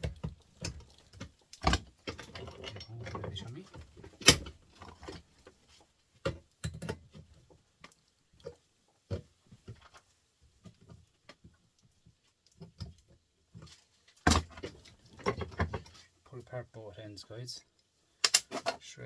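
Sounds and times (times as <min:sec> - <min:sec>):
pliers and metal parts clicking: 0:18.2 - 0:18.6.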